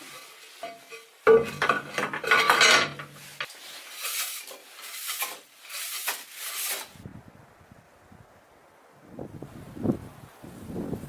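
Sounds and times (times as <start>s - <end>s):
rasping scrapes: 0.0s - 7.0s.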